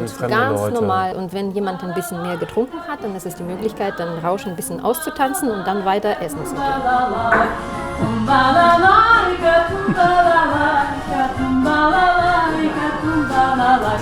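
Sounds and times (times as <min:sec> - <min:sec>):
person singing: 0:00.0 - 0:14.0.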